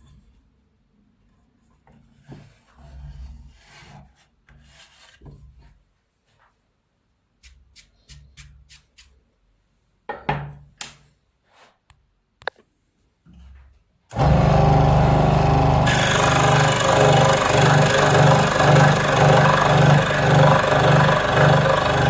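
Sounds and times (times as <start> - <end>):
rasping scraping strokes: 15.9 - 22.0.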